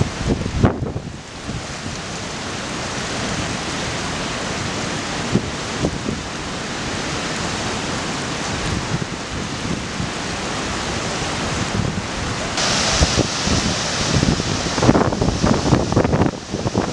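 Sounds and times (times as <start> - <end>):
wind buffeting microphone: 0.0 - 2.2, 8.4 - 16.9
river rushing: 0.0 - 16.9.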